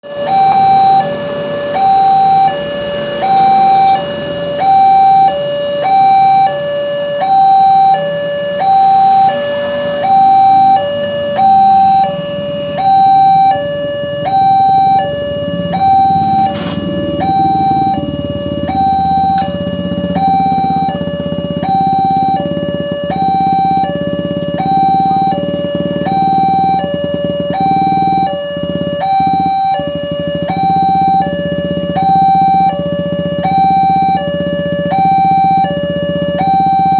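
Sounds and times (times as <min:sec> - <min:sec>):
level crossing two-tone alarm: 0:00.0 - 0:36.9
low rumble: 0:09.4 - 0:35.2.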